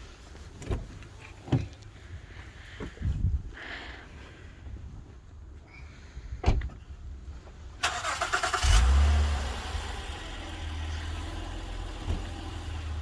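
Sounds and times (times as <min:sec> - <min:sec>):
car engine starting and idling: 0:07.8 - 0:13.0.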